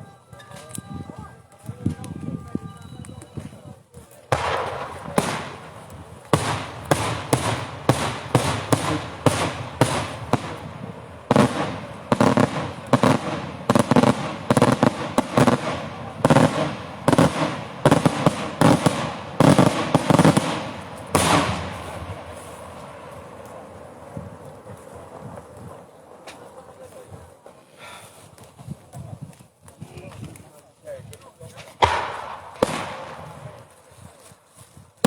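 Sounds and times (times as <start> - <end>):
fireworks banging: 4.2 - 27.6, 31.6 - 34.3.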